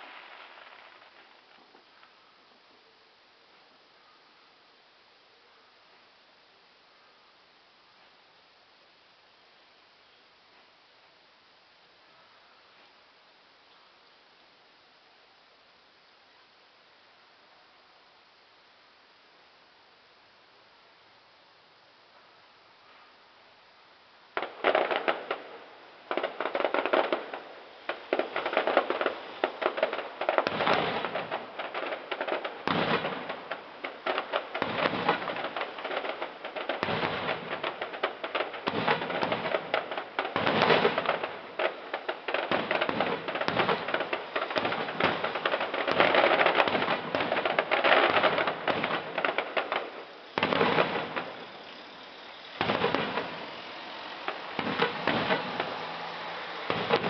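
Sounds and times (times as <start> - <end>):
fireworks bursting: 0.0 - 2.2, 24.3 - 57.0.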